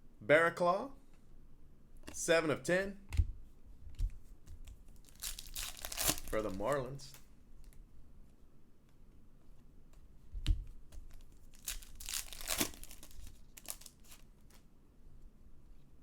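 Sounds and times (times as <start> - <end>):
cards being handled: 4.0 - 7.8, 9.9 - 14.7
wrappers crinkling and tearing: 5.0 - 7.2, 11.1 - 14.6.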